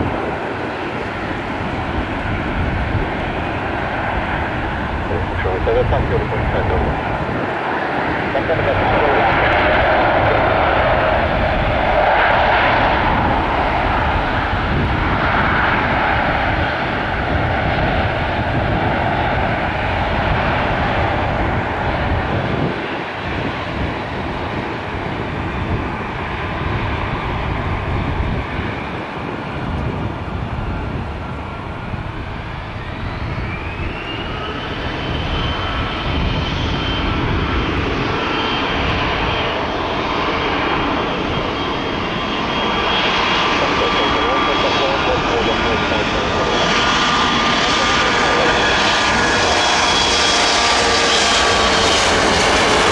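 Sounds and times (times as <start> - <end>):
jet engines rushing: 0.0 - 52.9
rising engine whine: 3.2 - 16.2, 30.0 - 52.9.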